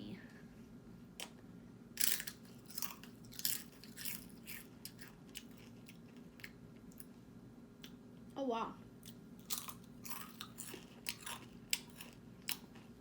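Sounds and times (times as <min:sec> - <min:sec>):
crunching tortilla chips: 0:02.0 - 0:06.5, 0:09.4 - 0:12.7.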